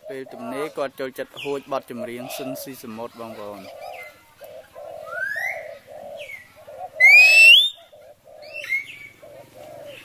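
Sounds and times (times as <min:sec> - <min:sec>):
low bird coos: 0:00.0 - 0:10.0
bird whistling rising notes: 0:07.0 - 0:07.8.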